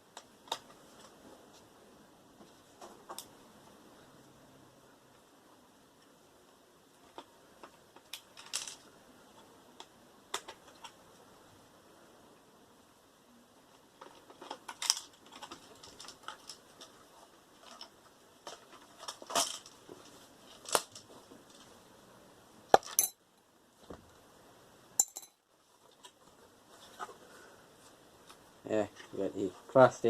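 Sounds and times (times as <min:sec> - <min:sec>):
metal tools clicking and clinking: 0:22.8 - 0:23.2, 0:25.0 - 0:25.4.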